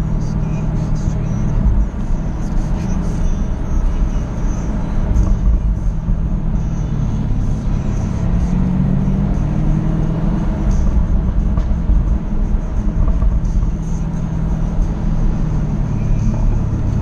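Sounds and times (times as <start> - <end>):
car engine drone: 0.0 - 17.0
road noise: 0.0 - 17.0.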